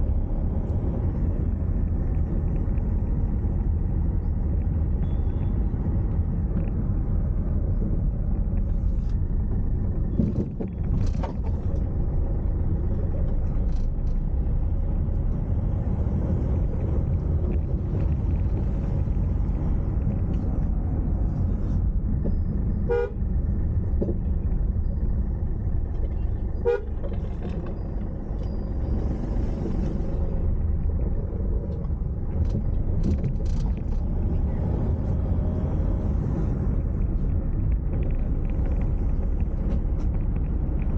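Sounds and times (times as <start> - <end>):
car engine and tyre rumble: 0.0 - 40.9
car horn toots: 22.8 - 23.2, 26.6 - 27.1.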